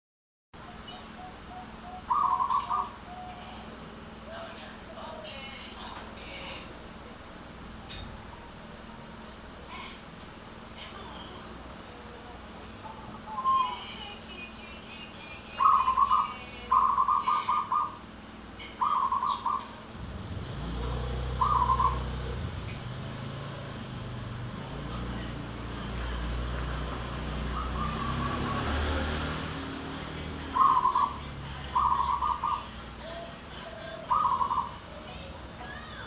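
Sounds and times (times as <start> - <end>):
dove cooing: 1.0 - 3.8, 15.6 - 18.0, 18.7 - 19.8, 20.6 - 22.5, 26.3 - 36.0.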